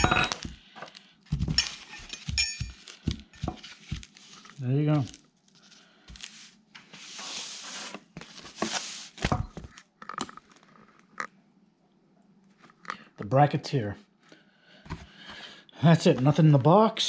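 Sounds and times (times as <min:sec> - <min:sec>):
packaging rustling and tearing: 0:02.8 - 0:10.6.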